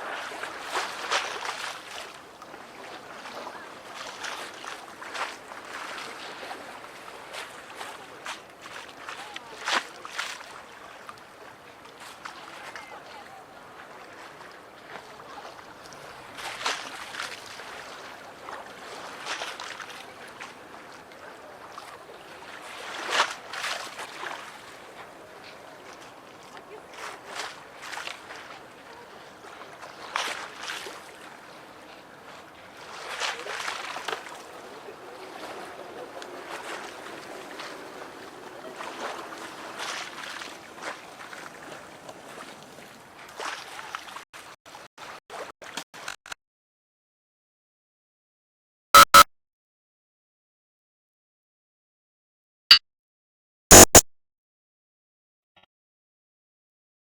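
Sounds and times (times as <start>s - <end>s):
steady wash of water: 0.0s - 44.2s
water slapping against quay: 0.0s - 46.2s
waves lapping and splashing: 0.0s - 46.3s.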